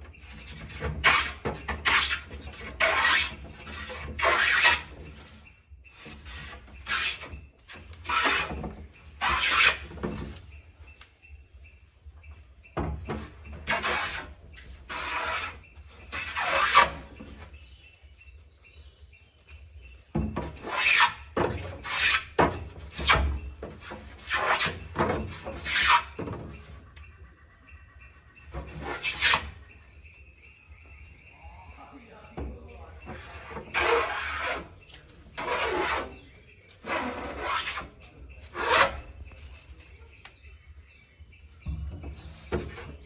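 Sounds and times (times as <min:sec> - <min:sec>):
hand tool rasping wood: 0:00.0 - 0:10.6, 0:12.8 - 0:17.8, 0:20.1 - 0:26.7, 0:28.5 - 0:29.8, 0:32.3 - 0:40.2, 0:42.1 - 0:43.0.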